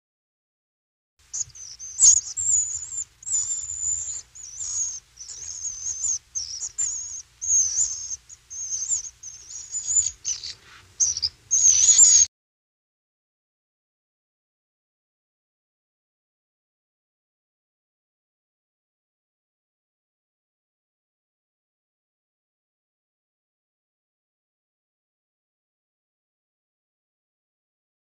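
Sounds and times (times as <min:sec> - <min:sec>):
small birds warbling: 0:01.2 - 0:12.3
faint low rumble: 0:01.3 - 0:12.3.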